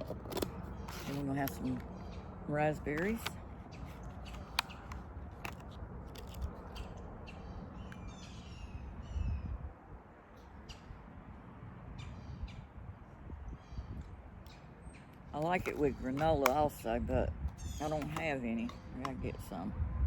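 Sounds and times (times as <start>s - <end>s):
birds calling: 0.0s - 9.6s, 13.4s - 19.6s.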